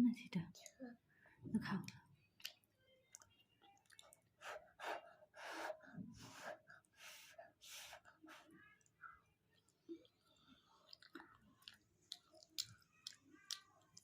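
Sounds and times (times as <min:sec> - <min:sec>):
person eating: 0:08.8 - 0:14.0.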